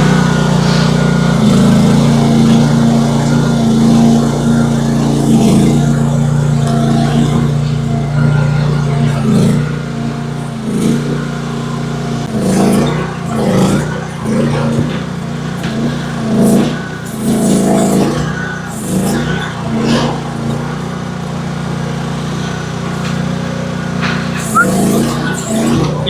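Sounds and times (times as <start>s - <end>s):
excavator engine running: 0.0s - 26.0s.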